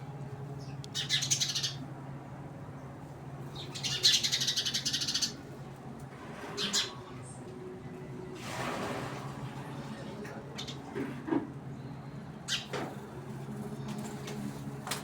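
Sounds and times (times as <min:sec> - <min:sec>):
bird chattering calls: 0:00.9 - 0:01.8, 0:03.7 - 0:05.4.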